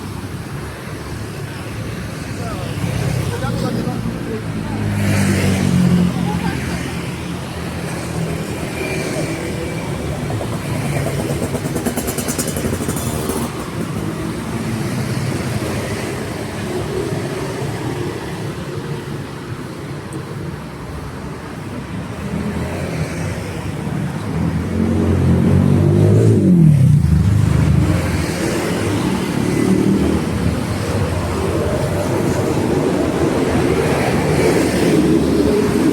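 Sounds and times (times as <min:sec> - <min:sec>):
street traffic: 0:00.0 - 0:35.9
vehicle passing close: 0:22.6 - 0:35.9.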